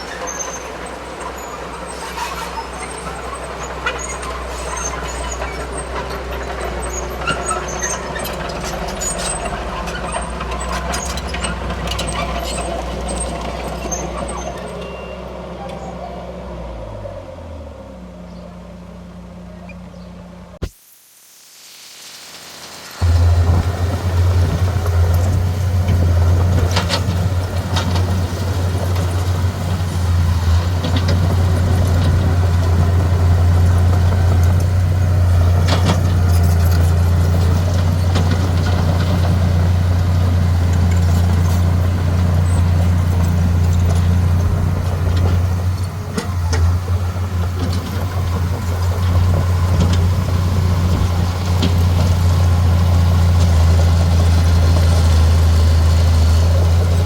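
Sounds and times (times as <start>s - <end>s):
heavy diesel engine droning: 0.0s - 20.6s, 23.0s - 57.0s.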